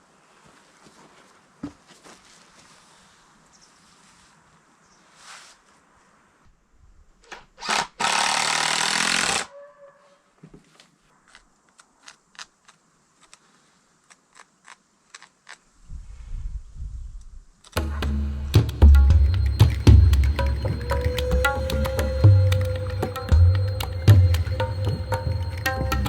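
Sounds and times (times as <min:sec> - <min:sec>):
power carving tool running: 0:07.6 - 0:09.4
music: 0:17.8 - 0:26.0.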